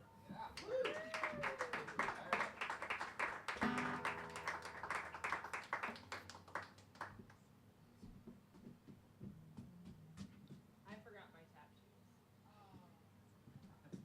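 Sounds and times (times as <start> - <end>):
small audience clapping: 0.5 - 7.4.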